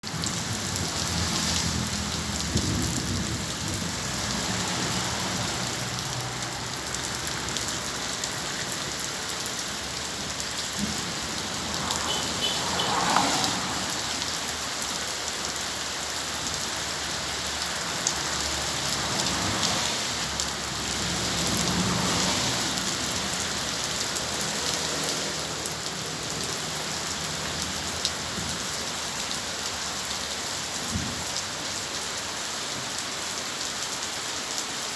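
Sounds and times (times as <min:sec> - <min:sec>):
heavy rain falling: 0:00.0 - 0:34.9
thunder rumbles: 0:00.1 - 0:05.5.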